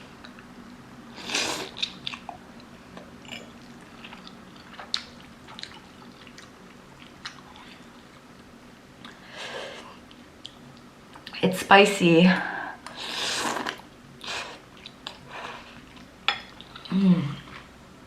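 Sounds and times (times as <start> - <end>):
person chewing noodles: 0.2 - 9.2, 12.8 - 17.7.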